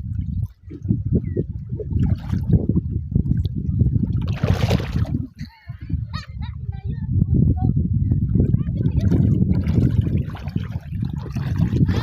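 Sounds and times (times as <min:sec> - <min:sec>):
water sloshing and splashing: 0:00.0 - 0:05.5, 0:08.3 - 0:12.0.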